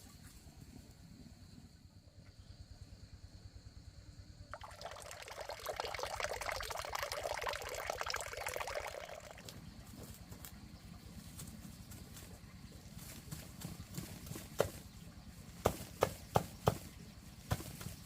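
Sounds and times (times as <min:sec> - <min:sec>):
water pouring and splashing: 0:04.6 - 0:10.0.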